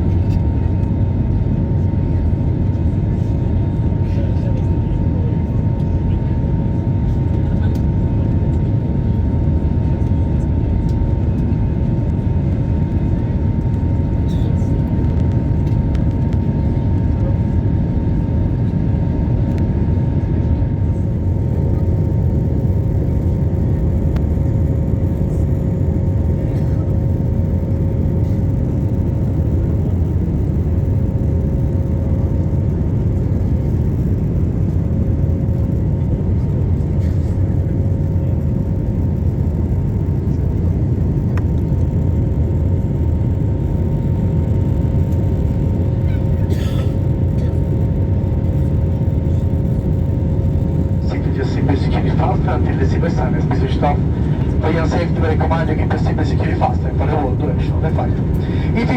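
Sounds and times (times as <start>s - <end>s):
airliner engine rumble in cabin: 0.0s - 58.9s
faint steady tones: 51.0s - 58.9s.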